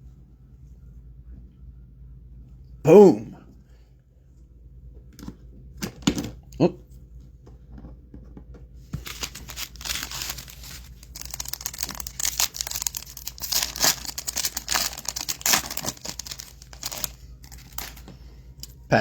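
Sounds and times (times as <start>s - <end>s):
foil card pack tearing and crinkling: 9.0s - 18.8s.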